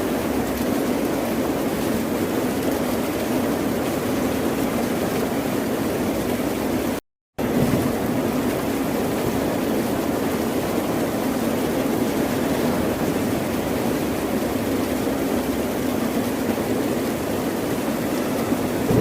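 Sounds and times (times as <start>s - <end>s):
ocean surf: 17.2s - 19.0s.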